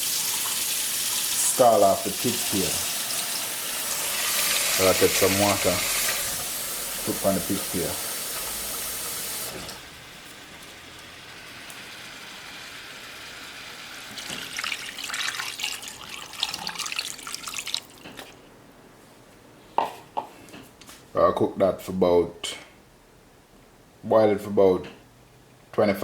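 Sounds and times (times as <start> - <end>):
water running from tap: 0.0 - 9.8, 11.0 - 18.0.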